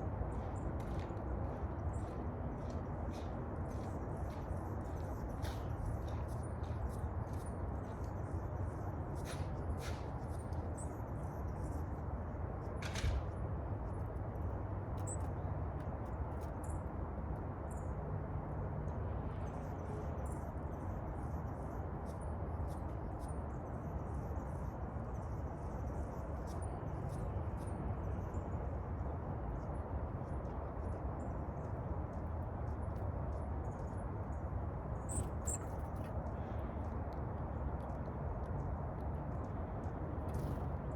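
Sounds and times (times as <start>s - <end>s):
small birds chirping: 29.5s - 40.9s.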